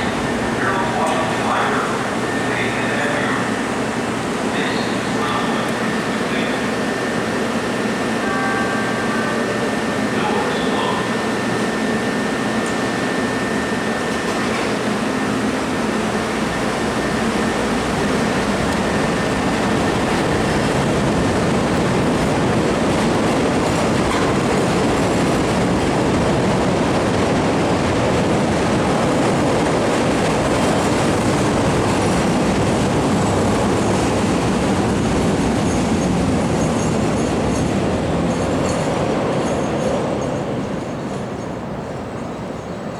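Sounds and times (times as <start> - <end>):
thin high whine: 0.0 - 21.6
train wheels on rails: 0.0 - 42.9.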